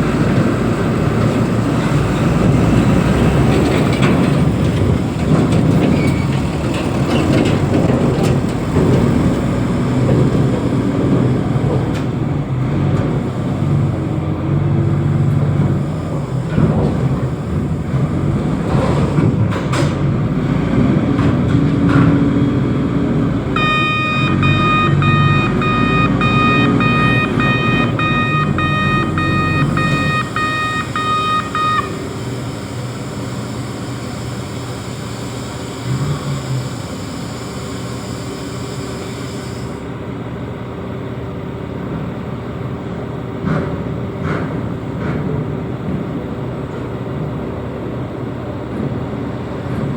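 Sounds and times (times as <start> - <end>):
heavy diesel engine running: 0.0 - 49.9
warning beeper beeping: 23.5 - 32.4.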